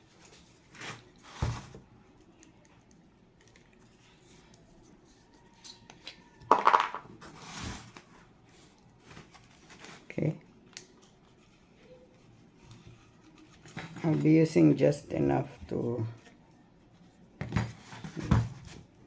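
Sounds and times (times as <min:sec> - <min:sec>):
wood pieces knocking: 0:06.5 - 0:07.1.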